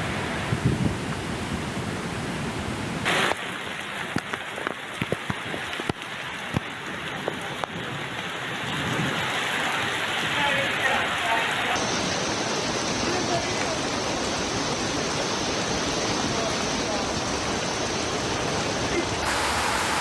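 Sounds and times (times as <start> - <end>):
heavy rain: 0.0 - 20.0
rushing water: 0.0 - 20.0
raindrops tapping close by: 3.1 - 11.2.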